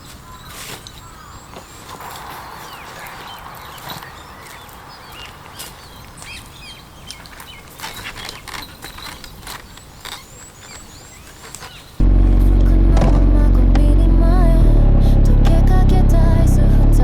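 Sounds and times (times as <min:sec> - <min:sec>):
small birds chirping: 0:00.0 - 0:12.0
low background rumble: 0:12.0 - 0:17.0.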